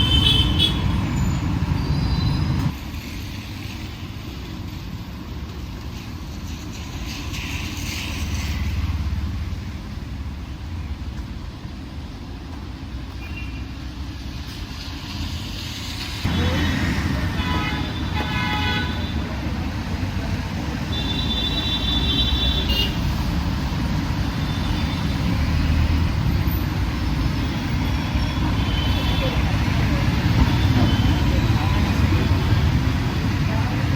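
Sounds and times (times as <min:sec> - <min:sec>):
vehicle horns honking: 0:00.0 - 0:02.0, 0:17.3 - 0:19.3, 0:20.9 - 0:23.1
road traffic: 0:00.0 - 0:33.9.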